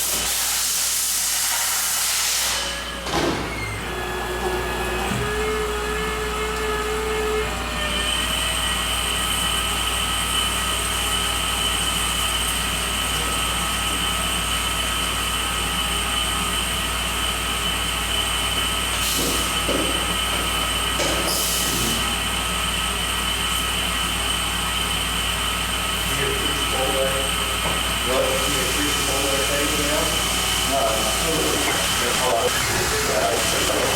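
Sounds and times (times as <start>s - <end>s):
lathe high-pitched whine: 3.6s - 33.9s
hissing bursts: 30.9s - 33.9s.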